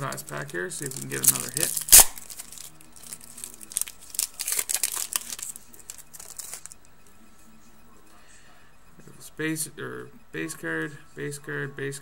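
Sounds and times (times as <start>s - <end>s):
card pack wrapper crinkling: 0.0s - 6.8s.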